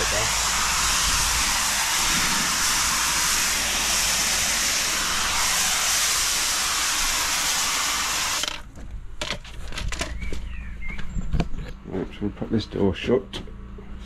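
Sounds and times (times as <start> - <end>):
pressure washer spray hissing: 0.0 - 8.5.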